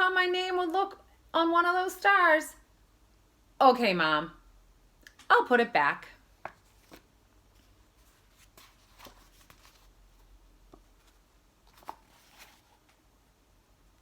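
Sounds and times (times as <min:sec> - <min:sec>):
faint rustles and clicks: 0:06.5 - 0:13.1.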